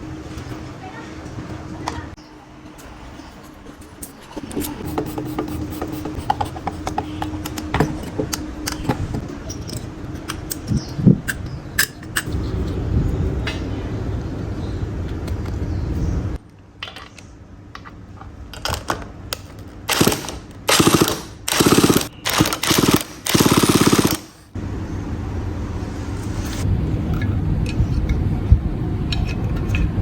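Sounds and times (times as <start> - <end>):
steady low hum: 19.8 - 30.0
chainsaw engine sputtering: 19.9 - 24.3.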